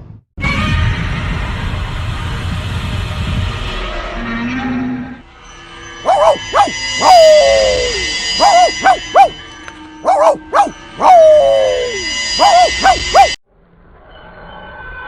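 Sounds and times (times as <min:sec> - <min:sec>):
steady high tones: 0:05.4 - 0:13.4
dog whining: 0:06.1 - 0:09.4, 0:10.0 - 0:13.4
dog yelping barks: 0:06.1 - 0:09.4, 0:10.0 - 0:13.4.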